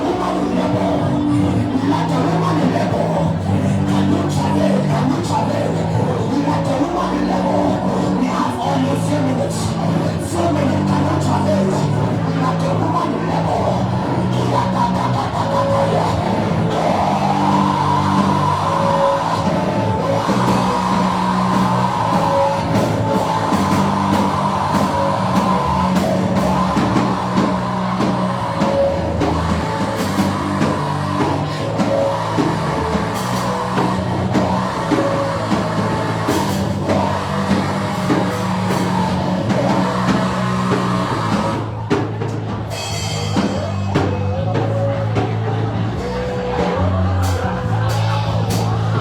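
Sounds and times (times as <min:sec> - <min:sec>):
band music: 0:00.0 - 0:49.0
sustained bass notes: 0:00.0 - 0:49.0
drum kit beat: 0:13.9 - 0:45.4.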